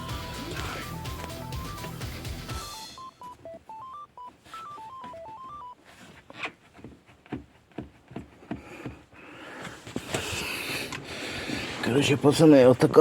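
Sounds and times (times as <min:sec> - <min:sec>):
electronic beeping melody: 0:00.0 - 0:05.8.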